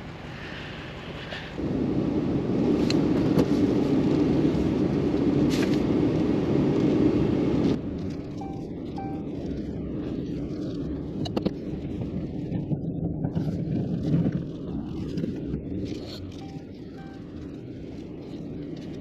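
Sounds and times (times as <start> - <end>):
truck engine and tyre rumble: 0.0 - 19.0
steady hum: 7.4 - 12.4, 15.1 - 19.0
faint short beeps: 8.4 - 9.4, 16.4 - 17.4.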